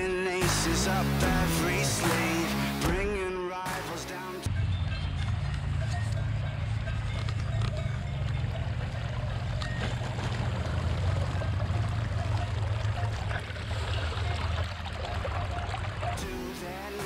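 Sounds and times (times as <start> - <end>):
motorcycle engine running: 4.5 - 16.5.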